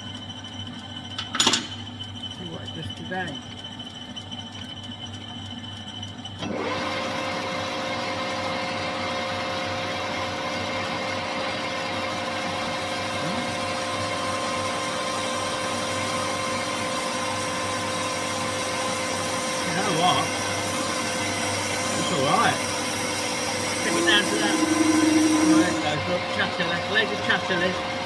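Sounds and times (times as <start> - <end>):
lathe motor whine: 0.0 - 28.0
tool cutting metal workpiece: 8.5 - 28.0.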